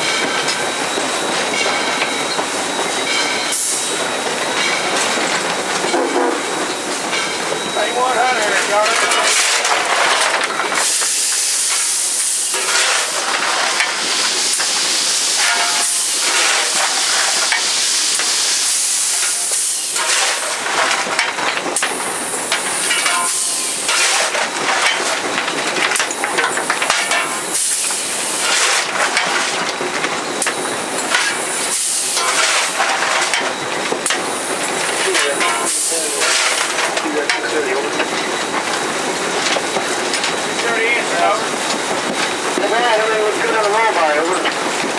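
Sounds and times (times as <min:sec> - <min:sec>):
steam hissing: 0:00.0 - 0:44.9
metallic clanks and knocks: 0:19.2 - 0:27.4.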